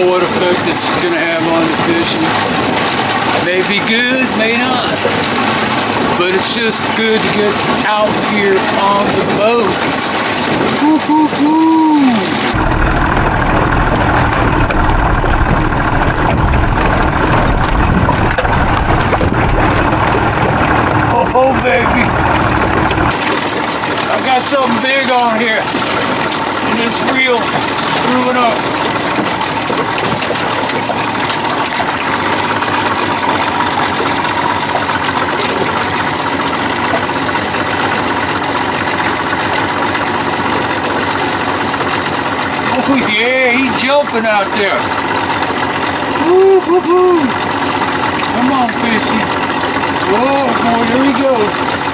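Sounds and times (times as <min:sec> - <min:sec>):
outboard motor running: 0:00.0 - 0:51.9
water around hull: 0:00.0 - 0:51.9.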